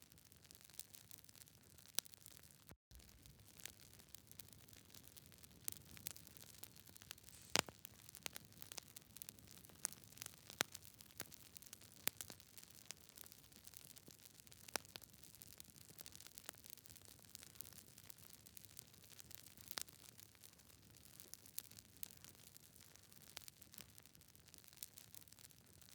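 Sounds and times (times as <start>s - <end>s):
campfire crackling: 2.0s - 15.2s.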